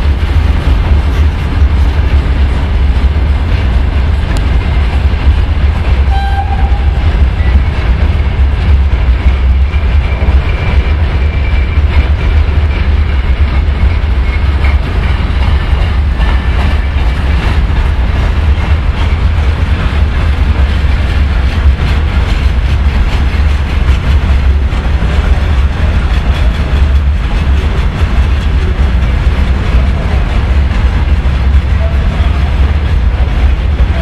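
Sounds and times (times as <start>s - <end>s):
train wagons rumbling past: 0.0s - 34.0s
wheels clattering over rail joints: 0.0s - 34.0s.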